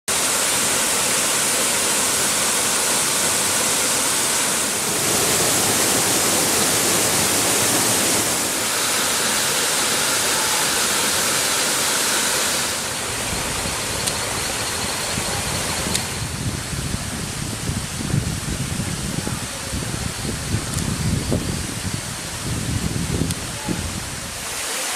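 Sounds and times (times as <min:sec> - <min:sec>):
waterfall rushing: 0:00.1 - 0:24.9
wind gusts on microphone: 0:12.5 - 0:24.6.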